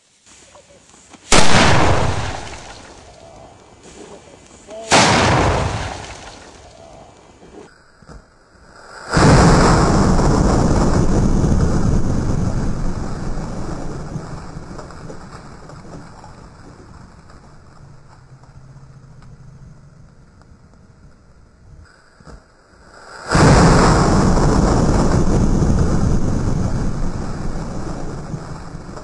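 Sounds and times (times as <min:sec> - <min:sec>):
cannon blast with rumble: 0:01.3 - 0:03.0, 0:04.9 - 0:06.7, 0:09.2 - 0:17.4, 0:23.3 - 0:29.0.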